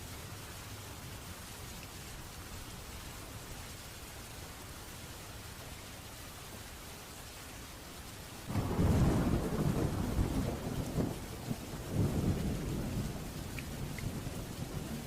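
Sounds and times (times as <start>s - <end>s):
steady rain: 0.0s - 15.0s
thunder crack and rumble: 8.5s - 15.0s.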